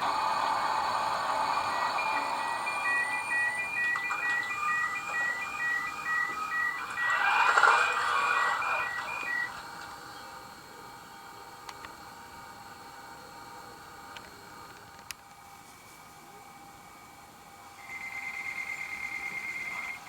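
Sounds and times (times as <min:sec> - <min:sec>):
two-tone electronic warning beeps: 0:00.3 - 0:10.3.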